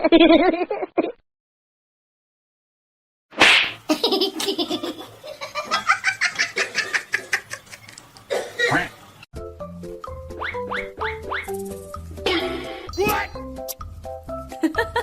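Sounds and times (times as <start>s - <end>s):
bouncy music: 9.4s - 15.0s.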